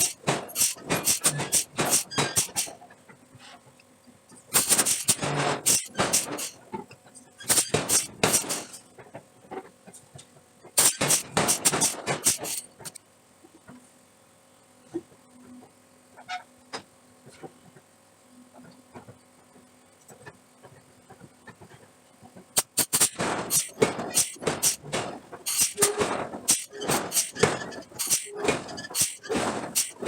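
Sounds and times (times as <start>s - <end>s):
faint machine hum: 0.0s - 30.0s
hard metal strikes: 7.4s - 8.7s.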